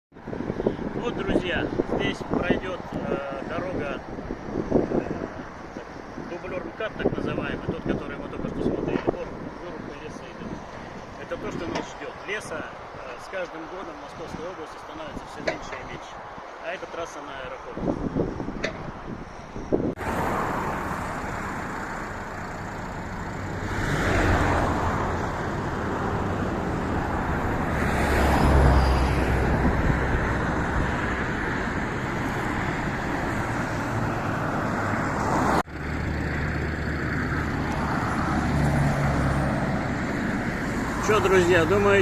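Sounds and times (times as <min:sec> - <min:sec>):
highway traffic rushing: 0:00.2 - 0:42.0.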